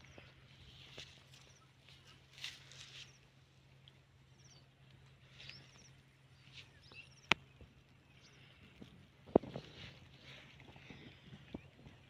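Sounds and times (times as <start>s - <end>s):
faint bird chirps: 0.0s - 3.3s, 4.2s - 8.7s
steady low hum: 0.0s - 12.0s.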